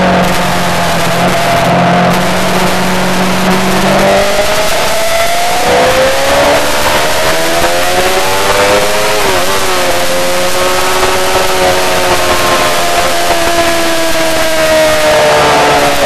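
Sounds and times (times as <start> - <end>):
motorcycle engine running hard: 0.0 - 16.0
wind noise: 0.0 - 16.0.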